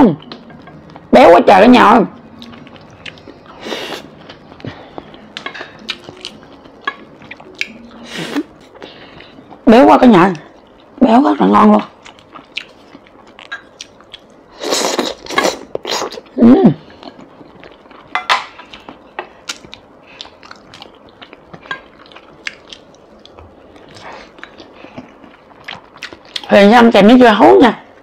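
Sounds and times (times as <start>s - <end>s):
close chewing: 2.2s - 7.8s, 11.9s - 16.3s, 16.9s - 26.5s.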